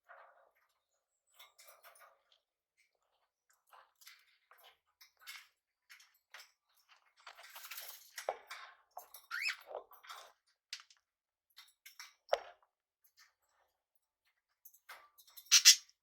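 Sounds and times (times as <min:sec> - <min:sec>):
parrots chirping and chattering: 0:09.3 - 0:09.6, 0:15.4 - 0:15.9.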